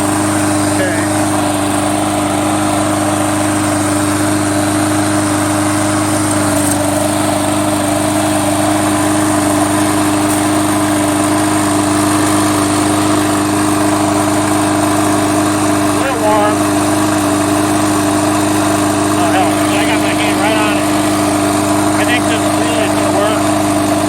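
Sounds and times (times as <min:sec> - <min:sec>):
lawn mower engine running: 0:00.0 - 0:24.0.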